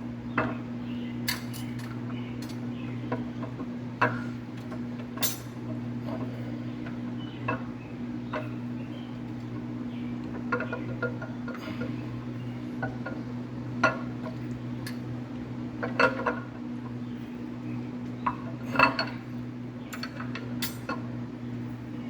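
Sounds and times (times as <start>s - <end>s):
low electrical hum: 0.0s - 22.0s
metallic clinks of engine parts: 5.2s - 5.6s.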